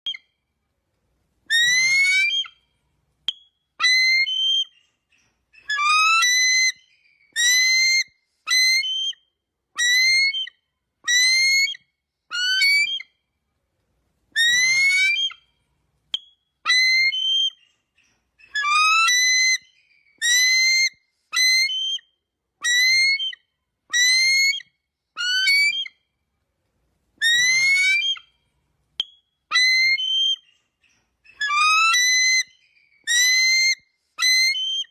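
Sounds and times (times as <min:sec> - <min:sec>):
eagle whistled cries: 0:01.5 - 0:02.6, 0:03.3 - 0:04.8, 0:05.6 - 0:09.2, 0:09.8 - 0:13.1, 0:14.4 - 0:15.5, 0:16.2 - 0:17.6, 0:18.4 - 0:26.0, 0:27.2 - 0:28.4, 0:29.0 - 0:30.5, 0:31.3 - 0:34.9.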